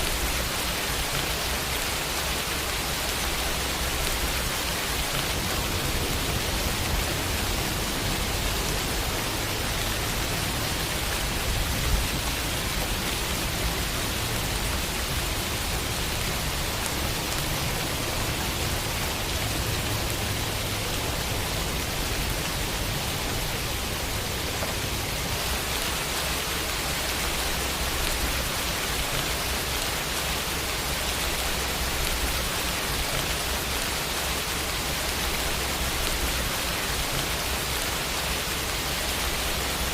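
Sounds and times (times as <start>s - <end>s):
rain on a window pane: 0.0s - 39.9s.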